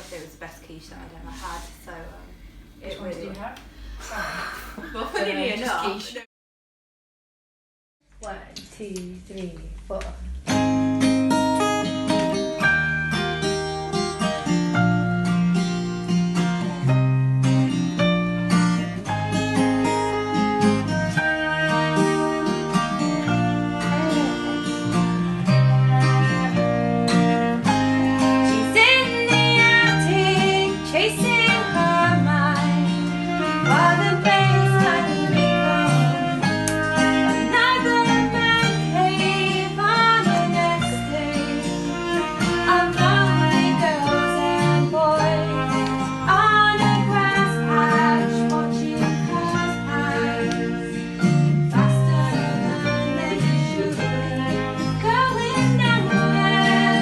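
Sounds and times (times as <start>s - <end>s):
acoustic band playing: 9.7s - 57.0s
woman singing: 28.6s - 50.9s, 51.7s - 57.0s.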